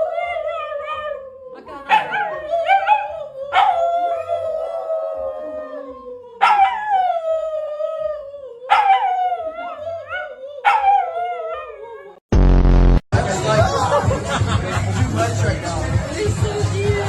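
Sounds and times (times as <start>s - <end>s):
dog howling: 0.0s - 12.2s.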